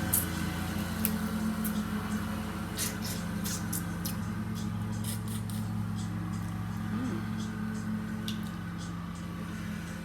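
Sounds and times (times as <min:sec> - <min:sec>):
lawn mower engine droning: 0:00.0 - 0:05.0.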